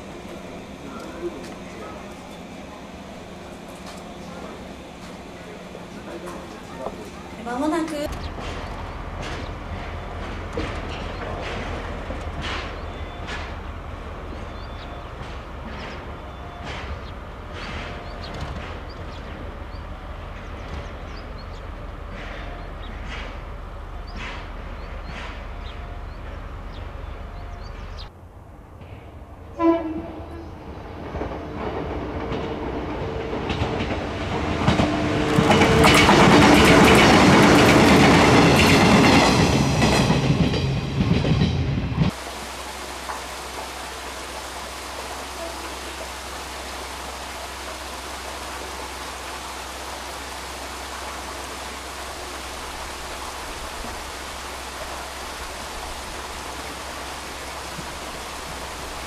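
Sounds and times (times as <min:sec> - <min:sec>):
electric train passing: 0:00.0 - 0:59.0
train horn blast: 0:29.5 - 0:30.7, 0:45.0 - 0:46.6.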